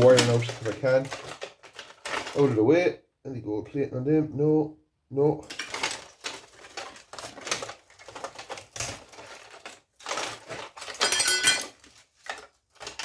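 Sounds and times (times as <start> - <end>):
metal and plastic parts rattling: 0.0 - 2.6, 5.4 - 13.0
metallic clatter with ring: 11.0 - 11.8.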